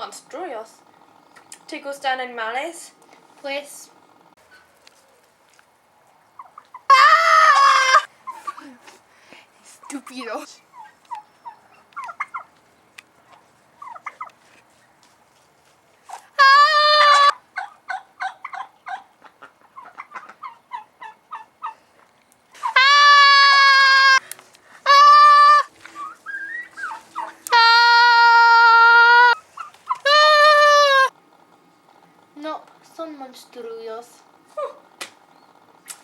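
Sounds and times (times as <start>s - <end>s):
poultry long calls: 6.2s - 8.7s, 10.7s - 12.5s, 13.2s - 14.4s, 16.1s - 22.0s, 22.6s - 24.2s, 24.8s - 31.2s
poultry clucking: 6.2s - 8.8s, 9.8s - 14.9s, 16.1s - 24.2s, 24.8s - 31.1s.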